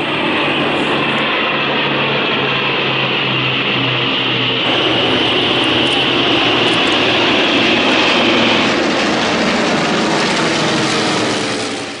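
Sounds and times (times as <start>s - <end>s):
airplane engine noise: 0.0s - 12.0s
high whine: 4.6s - 9.4s.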